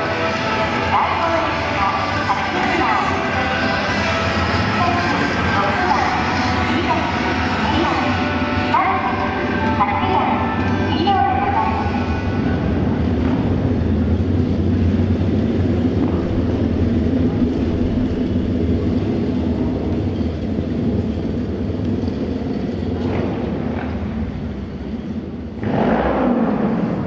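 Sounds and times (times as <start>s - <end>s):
motorcycle engines rumbling: 0.0s - 27.0s
motorcycle passing by: 25.6s - 27.0s.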